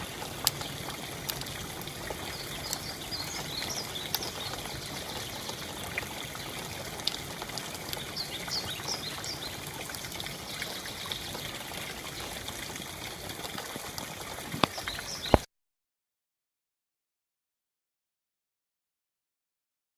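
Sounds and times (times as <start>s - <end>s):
drips tapping: 0.0s - 15.4s
rain falling: 0.0s - 15.4s
water trickling: 0.0s - 15.5s
bird chirping: 2.2s - 5.7s, 8.0s - 11.4s.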